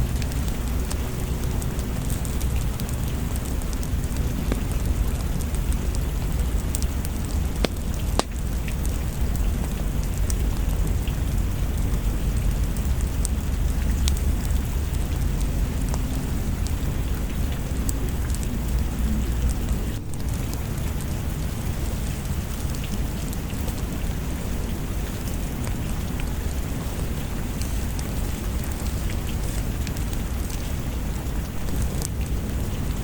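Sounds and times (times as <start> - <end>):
deep low rumble: 0.0 - 21.7
steady rain: 0.0 - 33.0.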